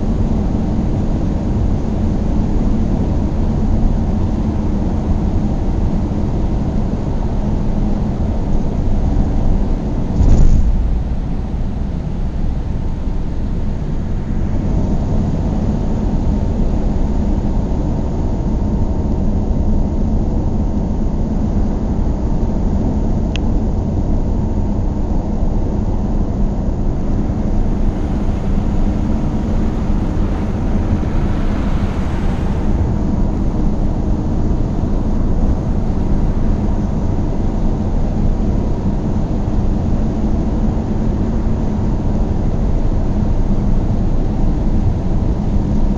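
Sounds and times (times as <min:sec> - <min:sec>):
car engine and tyre rumble: 0:00.0 - 0:18.7, 0:24.4 - 0:45.9
hiss: 0:26.9 - 0:36.8.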